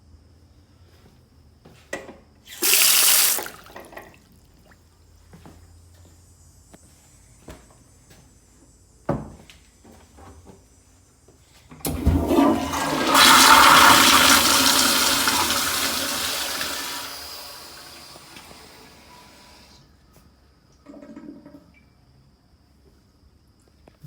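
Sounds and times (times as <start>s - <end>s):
toilet flushing: 2.5s - 4.8s, 11.8s - 19.8s, 20.8s - 21.8s.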